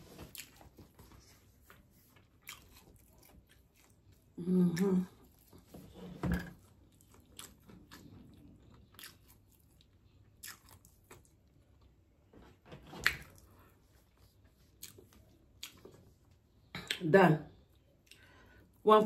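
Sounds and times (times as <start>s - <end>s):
person chewing and crunching food: 0.0s - 12.3s, 12.9s - 17.0s, 17.6s - 18.8s.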